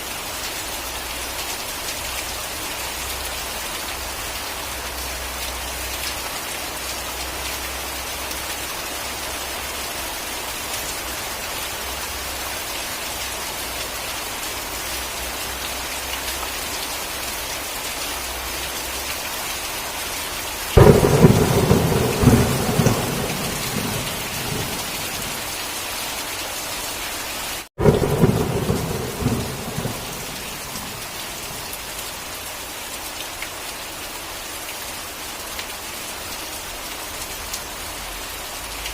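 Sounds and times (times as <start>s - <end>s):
heavy rain: 0.0s - 38.9s
thunder rumbling: 20.8s - 25.5s, 27.8s - 31.7s.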